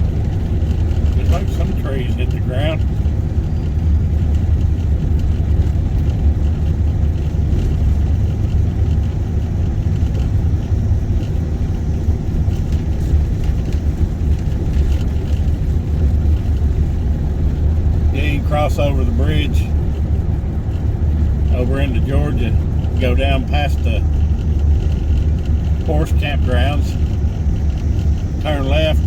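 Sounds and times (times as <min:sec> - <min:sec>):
car engine rumble: 0:00.0 - 0:29.0
tyre road noise: 0:00.0 - 0:29.0.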